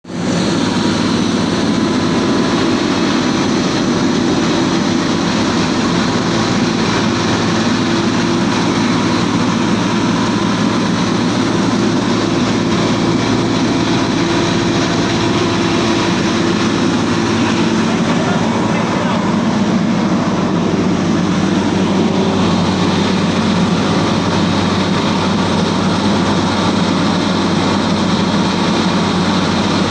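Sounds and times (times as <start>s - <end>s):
grinder machine running: 0.1s - 29.9s.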